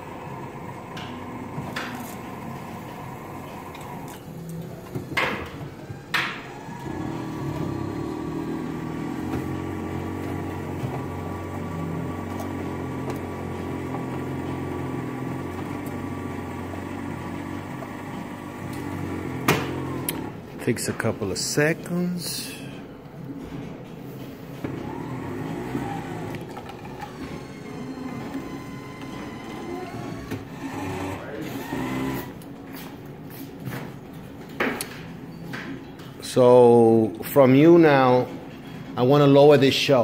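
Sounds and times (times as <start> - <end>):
coffee machine motor hum: 0.0 - 21.5, 24.2 - 32.9.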